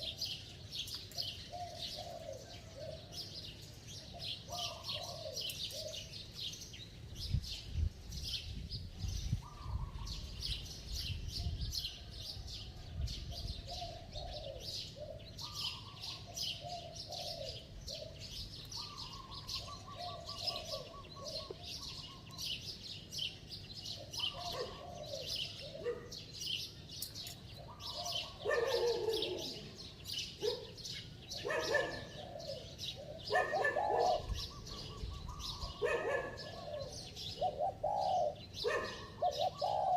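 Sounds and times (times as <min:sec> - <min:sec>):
small birds chirping: 0:00.0 - 0:39.9
dove cooing: 0:01.1 - 0:03.2, 0:04.1 - 0:06.2, 0:13.4 - 0:22.4, 0:24.0 - 0:26.2, 0:27.6 - 0:29.8, 0:30.4 - 0:39.9.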